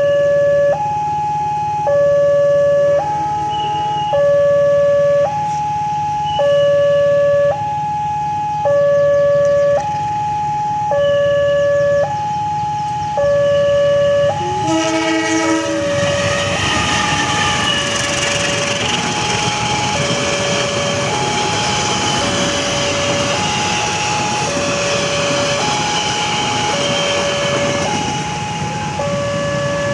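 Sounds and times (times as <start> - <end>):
level crossing two-tone alarm: 0.0 - 29.9
passing train rumble: 9.4 - 29.9
train horn: 14.3 - 25.1.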